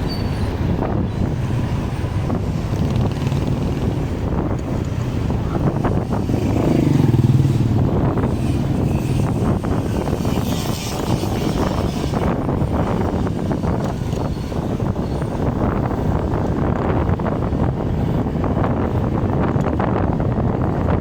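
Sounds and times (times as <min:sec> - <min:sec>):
motorcycle engine running: 0:02.3 - 0:13.8.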